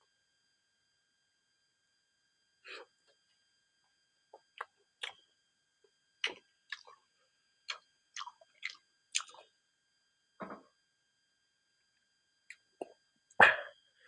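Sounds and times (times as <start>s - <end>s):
close-up chewing crunches: 8.2s - 9.4s
mouth smacks: 12.8s - 13.7s.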